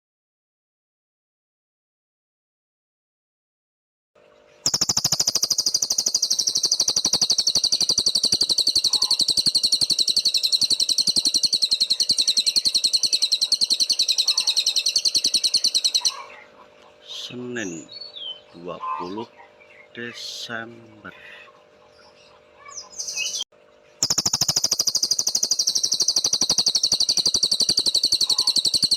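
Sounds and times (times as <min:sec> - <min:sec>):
steady low hum: 0:04.4 - 0:28.9
songbird trilling: 0:04.6 - 0:23.4, 0:24.0 - 0:28.9.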